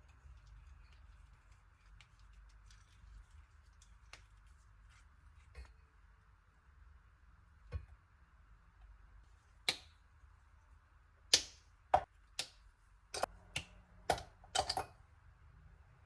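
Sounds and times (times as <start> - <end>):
kitchen utensils clicking and knocking: 14.1 - 15.0.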